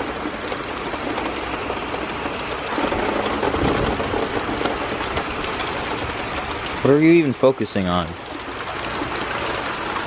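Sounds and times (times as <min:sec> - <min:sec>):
wind rumbling on microphone: 0:00.0 - 0:07.4
rain falling: 0:00.0 - 0:10.0.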